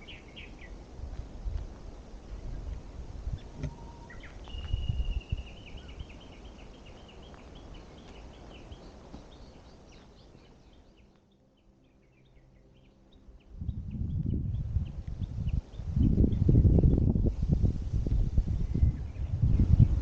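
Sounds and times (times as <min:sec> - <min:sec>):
small bird singing: 0:00.0 - 0:00.8, 0:02.3 - 0:17.5, 0:18.5 - 0:20.0
low rumbling noise: 0:00.0 - 0:09.0, 0:13.2 - 0:20.0.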